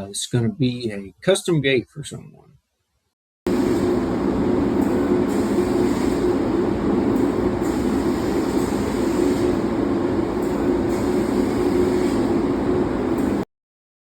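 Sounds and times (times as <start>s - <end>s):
laser cutter machine drone: 3.5s - 13.4s.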